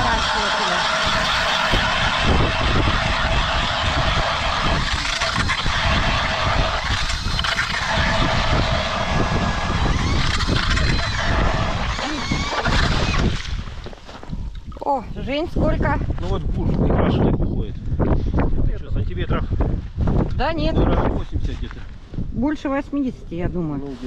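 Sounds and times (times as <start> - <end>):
ice auger motor whining: 0.0 - 14.0
auger grinding through ice: 0.0 - 14.6.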